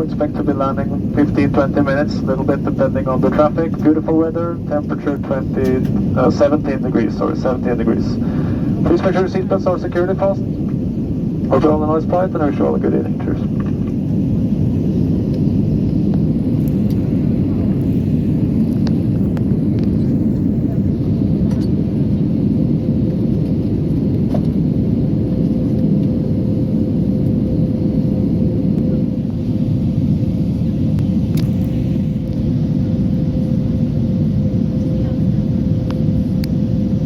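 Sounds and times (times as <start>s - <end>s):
faint steady hum: 0.0s - 21.0s
aircraft cabin engine rumble: 0.0s - 37.0s.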